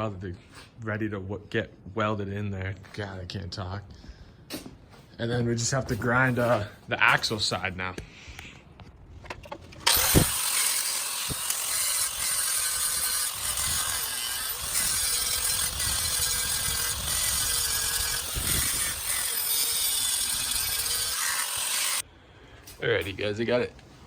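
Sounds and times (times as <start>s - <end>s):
grinder grinding steel: 9.8s - 22.0s.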